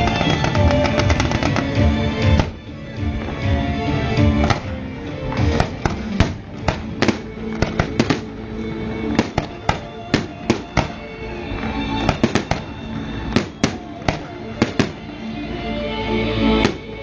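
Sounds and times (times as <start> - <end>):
fireworks bangs: 0.0 - 2.6, 5.3 - 8.4, 9.0 - 15.2, 16.5 - 17.0
music with sustained tones: 0.0 - 17.0.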